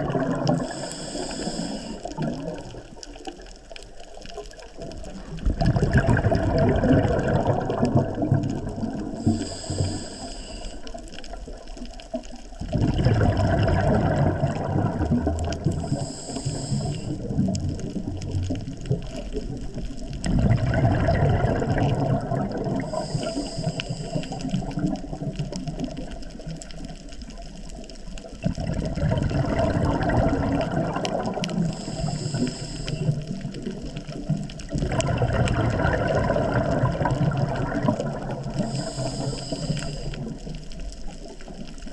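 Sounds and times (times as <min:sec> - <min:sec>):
exhaled bubbles rushing: 0:00.0 - 0:09.9, 0:10.9 - 0:16.2, 0:16.8 - 0:41.9
diver breathing through regulator: 0:00.5 - 0:02.2, 0:09.1 - 0:11.2, 0:15.8 - 0:17.3, 0:22.8 - 0:24.8, 0:31.5 - 0:33.4, 0:38.4 - 0:40.5
high hiss of inhale: 0:00.6 - 0:02.2, 0:09.2 - 0:11.2, 0:15.8 - 0:17.2, 0:22.8 - 0:24.7, 0:31.6 - 0:33.4, 0:38.5 - 0:40.5.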